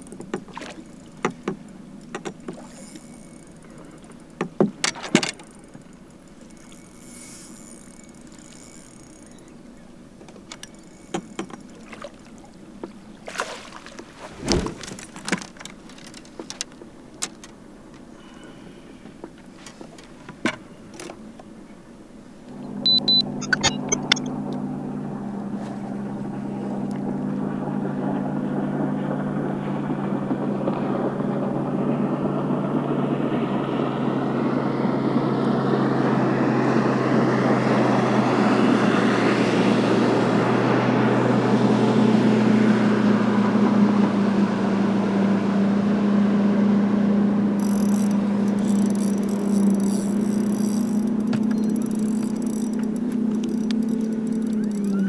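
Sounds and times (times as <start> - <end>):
outboard engine running: 0.0 - 55.0
rush of wind and water: 10.4 - 18.0.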